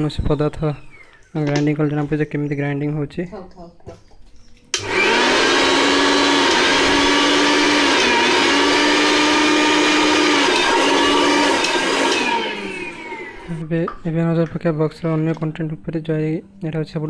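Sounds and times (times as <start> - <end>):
mixer grinder motor whining: 4.7 - 13.7.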